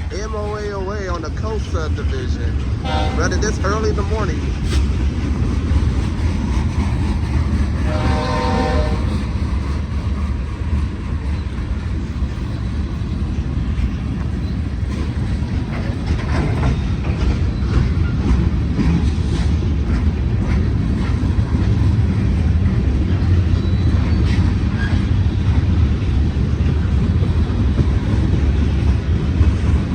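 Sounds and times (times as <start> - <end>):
freight train rumbling past: 0.0 - 29.9
train horn: 2.8 - 3.5, 7.8 - 9.3.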